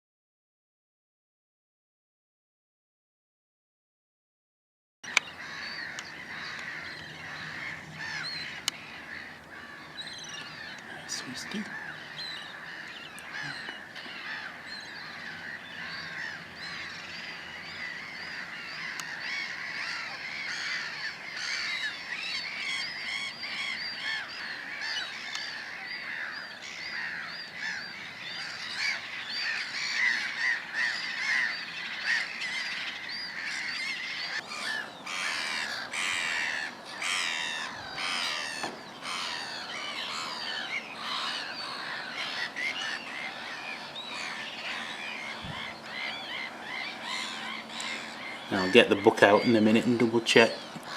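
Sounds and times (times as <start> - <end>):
chorus of birds calling: 5.0 - 50.9.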